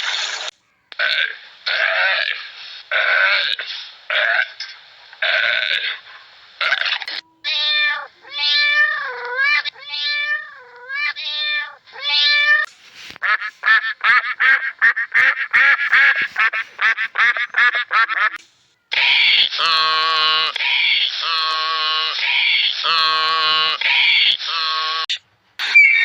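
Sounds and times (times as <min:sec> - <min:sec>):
cat meowing: 0:06.6 - 0:12.7.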